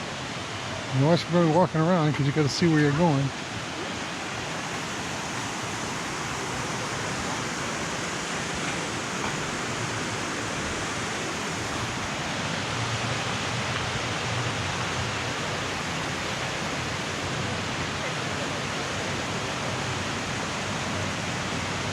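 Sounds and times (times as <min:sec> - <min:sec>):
flowing water rushing: 0:00.0 - 0:21.9.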